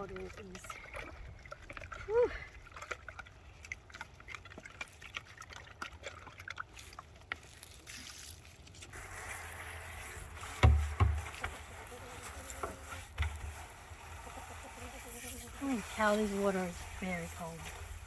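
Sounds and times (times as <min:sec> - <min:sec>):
water trickling and splashing: 0:00.0 - 0:18.0.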